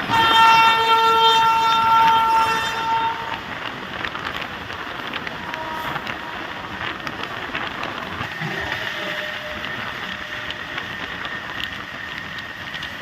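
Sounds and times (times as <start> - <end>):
train wagons rumbling on rails: 0.0 - 13.0
high-pitched squeal: 8.3 - 12.0.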